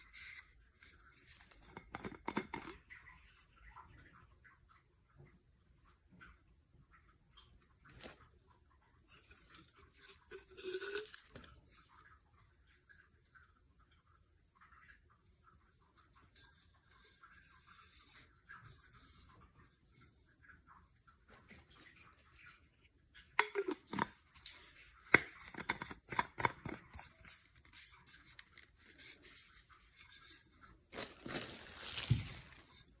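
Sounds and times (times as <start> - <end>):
soft rustling: 27.2 - 33.0
rustling scrape: 27.8 - 33.0.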